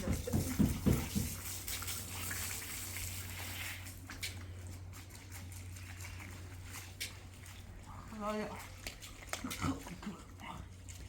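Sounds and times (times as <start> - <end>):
running water splashing: 0.0 - 11.0.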